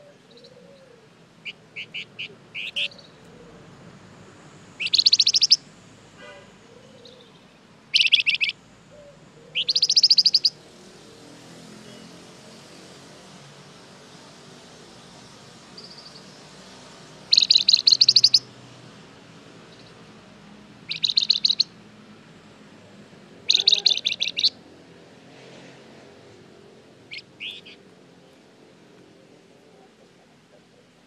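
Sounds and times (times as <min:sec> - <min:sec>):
bird chattering trills: 0:01.4 - 0:03.2, 0:04.8 - 0:05.6, 0:06.9 - 0:08.6, 0:09.4 - 0:10.6, 0:17.3 - 0:18.5, 0:20.9 - 0:21.7, 0:23.4 - 0:24.6, 0:27.1 - 0:27.8.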